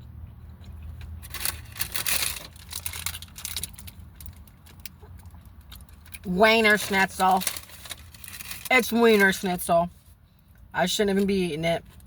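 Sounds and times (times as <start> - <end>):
paper packaging crinkling: 1.2 - 4.9, 5.7 - 9.5.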